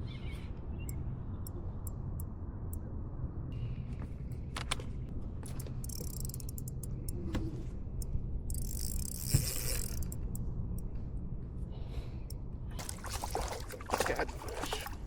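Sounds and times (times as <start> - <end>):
fishing reel clicking: 5.6 - 7.2, 8.5 - 10.4.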